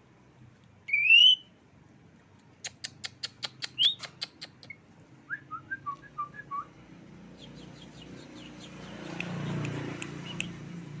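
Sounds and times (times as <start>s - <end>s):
bird whistling and chattering: 0.9s - 1.5s, 2.6s - 4.8s.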